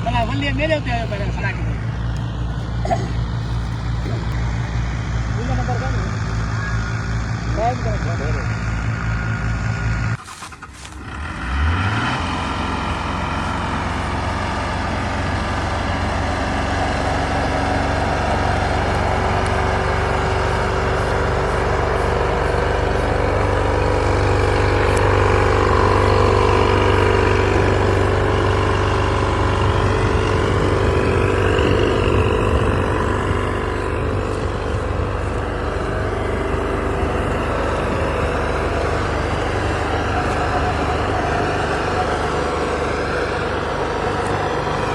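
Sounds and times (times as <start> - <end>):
diesel engine running under load: 0.0 - 44.9.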